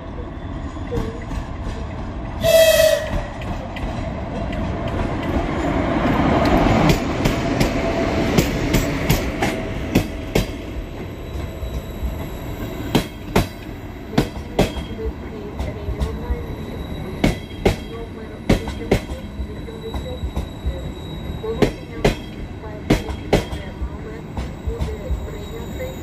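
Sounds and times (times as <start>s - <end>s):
train rumble: 0.0s - 26.0s
train horn blast: 2.4s - 3.4s.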